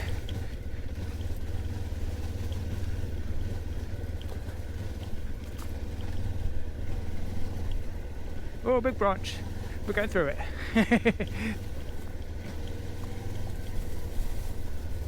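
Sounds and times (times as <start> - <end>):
motorcycle engine droning: 0.0 - 15.0.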